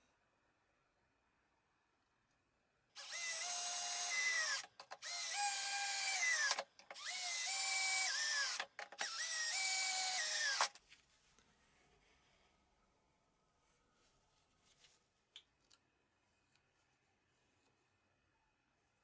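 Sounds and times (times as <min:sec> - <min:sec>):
electric drill whine: 0:03.0 - 0:10.8.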